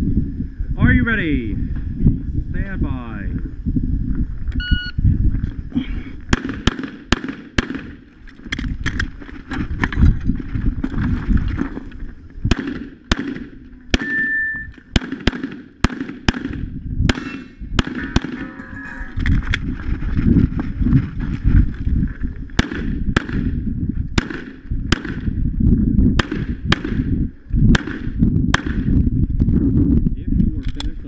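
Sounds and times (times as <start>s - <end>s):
electronic start beep: 4.6s - 5.0s, 14.0s - 14.8s
pistol shots: 6.3s - 8.0s, 12.5s - 14.2s, 14.9s - 18.4s, 22.6s - 23.5s, 24.2s - 25.3s, 26.2s - 27.1s, 27.7s - 28.9s.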